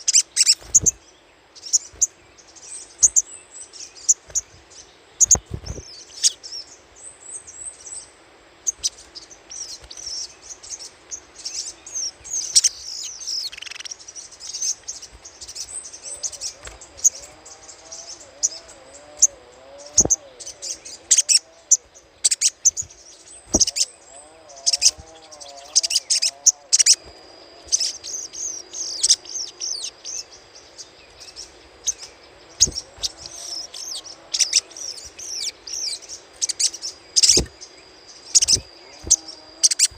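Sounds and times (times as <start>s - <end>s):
bird chattering calls: 0.0s - 1.0s, 11.4s - 39.9s.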